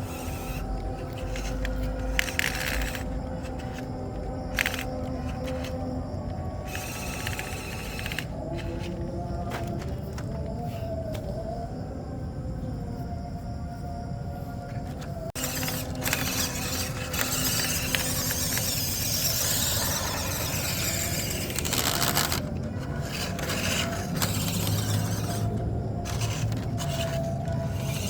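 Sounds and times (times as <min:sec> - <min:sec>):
rc truck motor whining: 0:00.0 - 0:11.4, 0:14.9 - 0:28.0
tyres scraping wet ground: 0:14.9 - 0:28.0.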